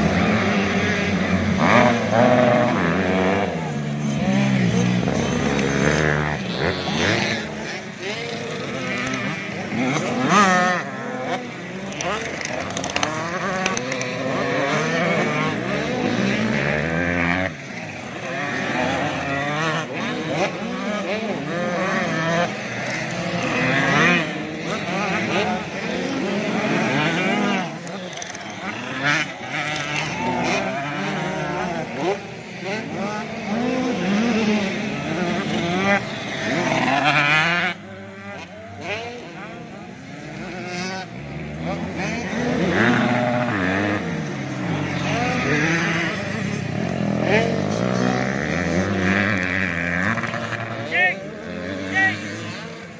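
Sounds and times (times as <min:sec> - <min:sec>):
motocross bikes revving: 0:00.0 - 0:52.9.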